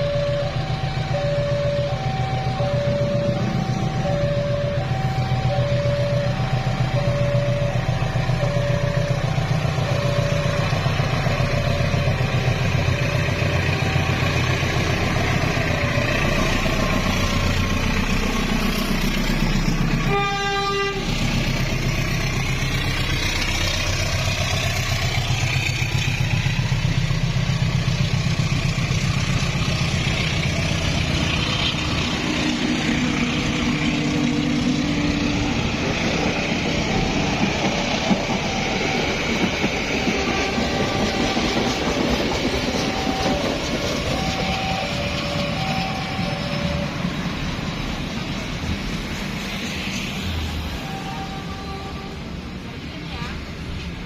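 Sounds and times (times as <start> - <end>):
two-note warning tone: 0.0 - 14.6, 42.8 - 47.1
train rumbling past: 0.0 - 54.0
locomotive horn blast: 13.0 - 14.7, 19.8 - 21.5, 40.0 - 41.9, 50.7 - 52.5.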